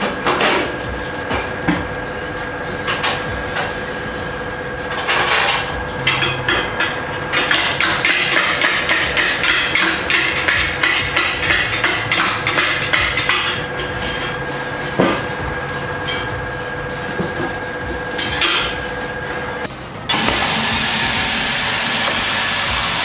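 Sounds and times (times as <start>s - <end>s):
steady thin hum: 0.0s - 7.8s.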